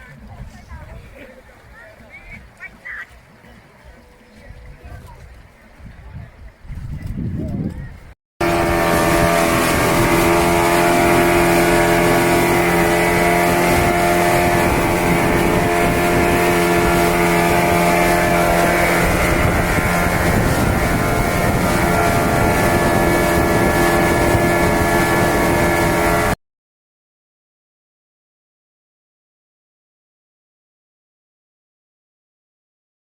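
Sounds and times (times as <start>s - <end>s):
speedboat engine running: 0.0s - 26.4s
wind noise on microphone: 0.0s - 26.4s.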